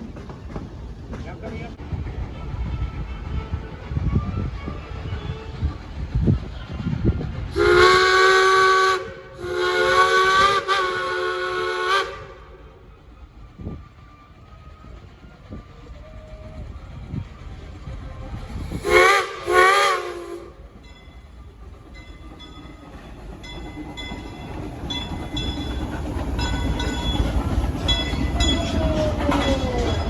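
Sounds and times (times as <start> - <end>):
train wheels clicking: 0.0 - 2.6, 5.8 - 30.0
steam locomotive whistle: 7.5 - 12.9, 18.7 - 20.6.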